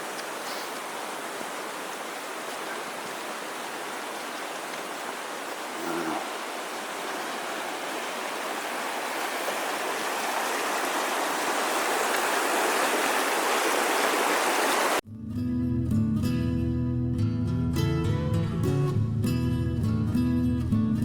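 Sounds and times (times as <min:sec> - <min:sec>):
stream rushing: 0:00.0 - 0:15.0
strummed acoustic guitar: 0:15.1 - 0:21.0.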